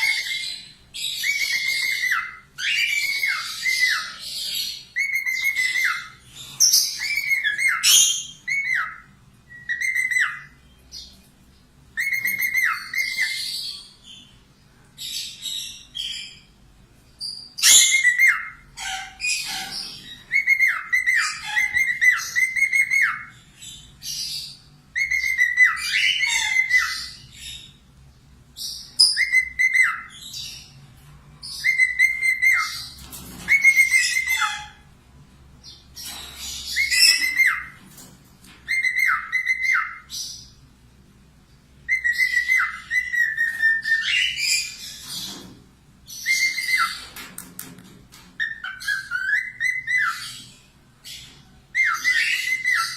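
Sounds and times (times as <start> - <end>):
bird singing whistled notes: 0.0 - 11.1, 12.0 - 14.2, 20.0 - 27.8, 28.6 - 30.7, 31.4 - 32.9, 33.5 - 34.7, 35.7 - 37.8, 38.7 - 40.5, 41.9 - 45.0, 46.1 - 47.0, 48.4 - 50.5, 51.2 - 52.9.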